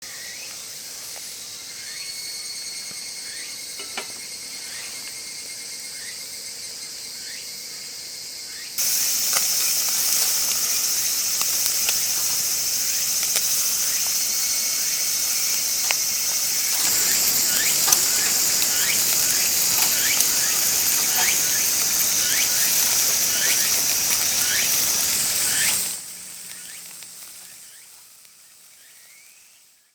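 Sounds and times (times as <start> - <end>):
meat sizzling on a grill: 0.1 - 7.3, 8.8 - 29.9.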